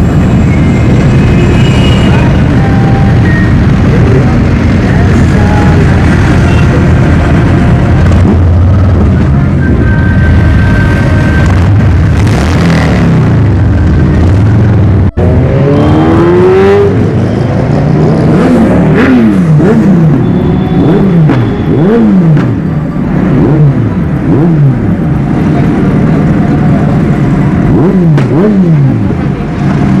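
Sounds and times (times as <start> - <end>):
motorcycle engines running: 0.0 - 30.0
engine revving hard: 15.2 - 17.2, 17.8 - 20.2, 20.8 - 22.6, 27.6 - 29.1.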